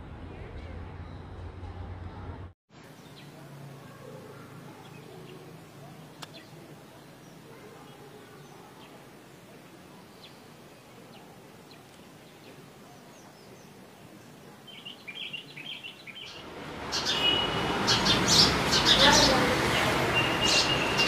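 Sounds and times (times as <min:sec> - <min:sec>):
outdoor background noise: 0:00.0 - 0:21.0
bird chirps: 0:14.7 - 0:19.4, 0:20.1 - 0:21.0.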